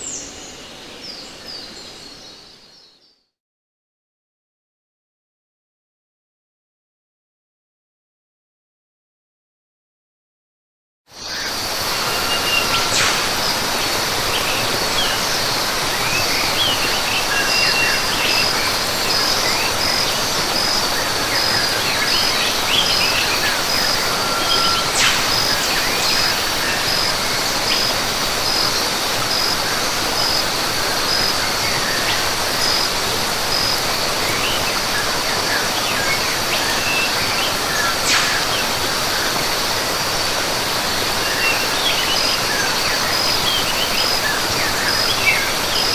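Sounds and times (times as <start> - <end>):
falling water rushing: 11.4 - 45.9
pulsed insect call: 11.4 - 45.9
birds chirping and calling: 16.1 - 32.9.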